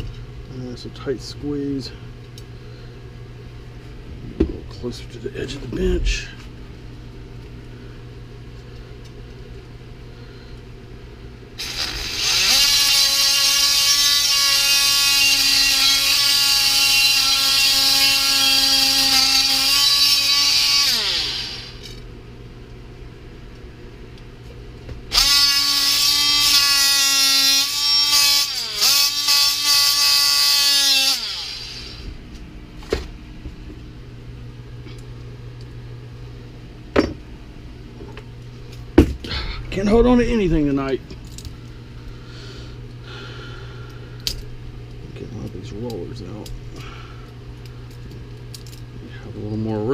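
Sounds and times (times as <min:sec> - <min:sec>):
power cutting tool spinning: 0:11.6 - 0:22.0, 0:25.1 - 0:32.1.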